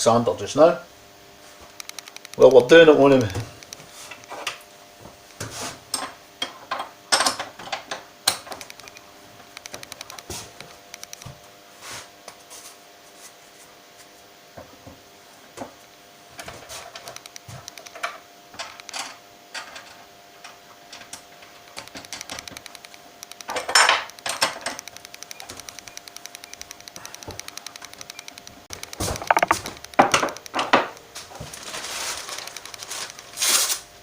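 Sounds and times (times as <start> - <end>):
small metal parts clinking: 23.4 - 24.8.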